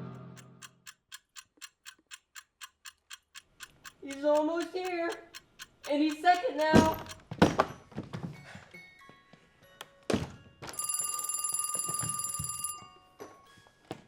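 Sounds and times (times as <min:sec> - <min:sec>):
knocks: 0:06.6 - 0:07.8.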